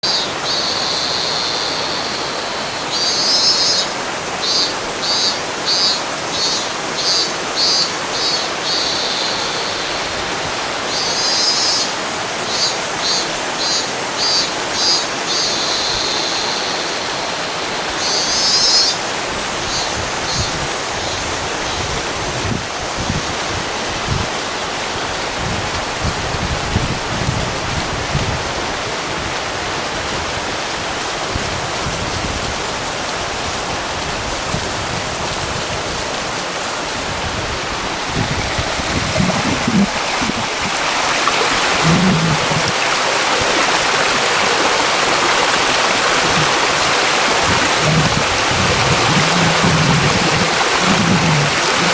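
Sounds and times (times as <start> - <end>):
cicada singing: 0.0 - 10.1, 10.8 - 22.5, 38.8 - 43.1, 45.4 - 51.9
river babbling: 0.0 - 25.4, 35.6 - 51.9.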